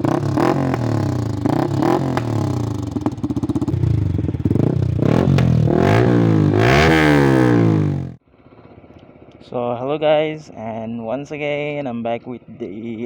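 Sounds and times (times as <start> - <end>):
exhaust cracks: 0.0 - 8.2
motorcycle engine revving: 0.0 - 8.6.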